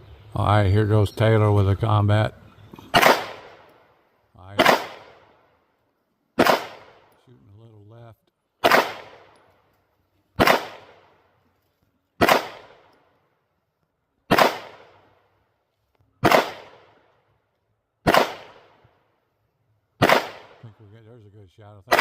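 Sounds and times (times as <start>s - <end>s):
pistol shots with echo: 2.9s - 3.9s, 4.6s - 5.5s, 6.4s - 7.2s, 8.6s - 9.5s, 10.4s - 11.2s, 12.2s - 13.1s, 14.3s - 15.2s, 16.2s - 17.1s, 18.0s - 18.8s, 20.0s - 20.8s.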